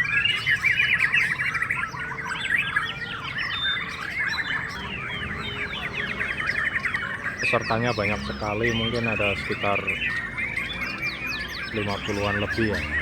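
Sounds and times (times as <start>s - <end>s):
chorus of birds singing: 0.0s - 13.0s.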